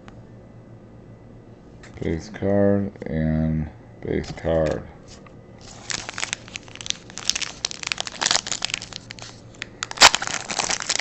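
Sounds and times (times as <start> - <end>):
foil wrapper crinkling: 5.6 - 11.0.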